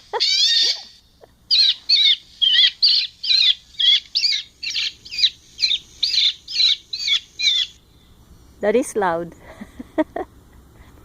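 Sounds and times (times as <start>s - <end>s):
bird call through loudspeaker: 1.5s - 7.8s.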